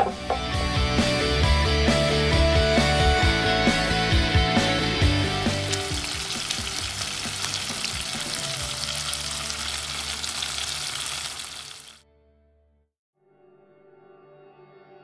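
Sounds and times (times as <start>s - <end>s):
patties sizzling in frying pan: 5.4s - 12.0s.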